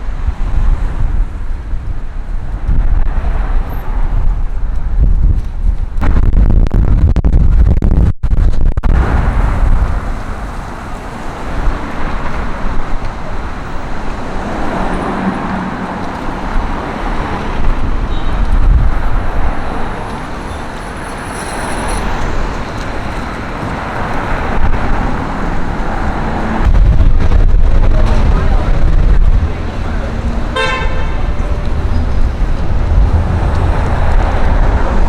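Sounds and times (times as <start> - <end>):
vehicles driving past: 8.9 - 35.0.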